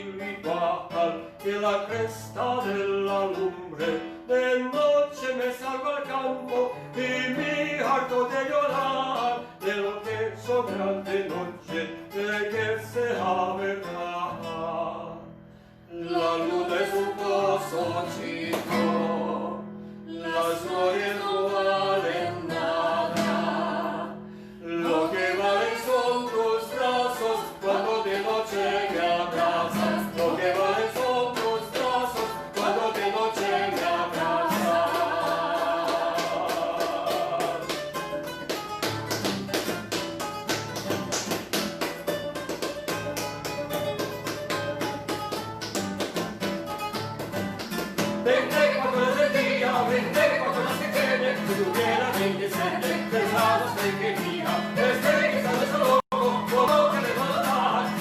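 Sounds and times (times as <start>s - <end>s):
acoustic guitar: 0.0s - 58.0s
person singing: 15.9s - 37.9s, 48.2s - 58.0s.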